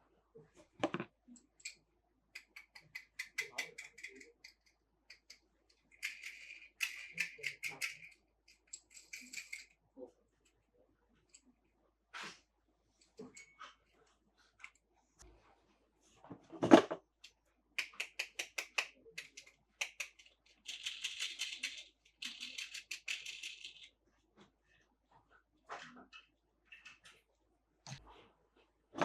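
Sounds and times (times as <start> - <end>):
rattling ratchet-like clicking: 2.4 - 9.7.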